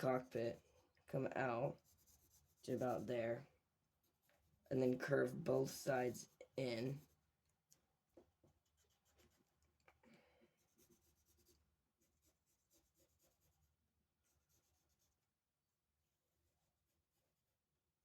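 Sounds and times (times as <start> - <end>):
drawing tool scratching on paper: 1.7 - 7.2, 8.5 - 9.6, 10.6 - 15.2.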